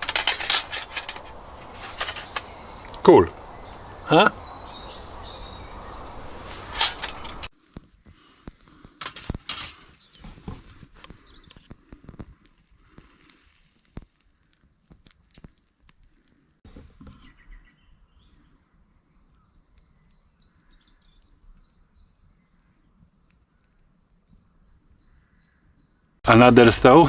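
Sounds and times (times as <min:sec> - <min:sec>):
faint clicks and crackles: 0:00.0 - 0:07.5
faint bird chirps: 0:01.2 - 0:07.5.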